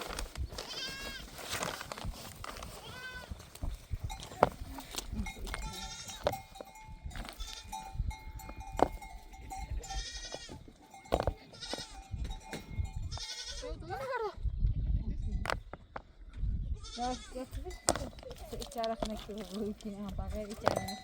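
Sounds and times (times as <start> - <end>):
goats bleating: 0.6 - 1.3, 2.8 - 3.4, 4.4 - 6.6, 7.3 - 7.9, 9.5 - 12.1, 13.1 - 14.4, 16.8 - 17.6
bell ringing: 20.7 - 21.0.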